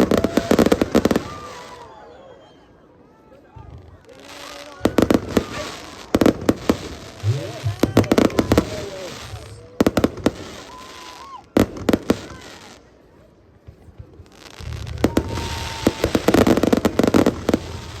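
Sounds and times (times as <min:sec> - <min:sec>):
fireworks bangs and crackles: 0:00.0 - 0:02.2, 0:03.4 - 0:18.0
voices: 0:00.0 - 0:18.0.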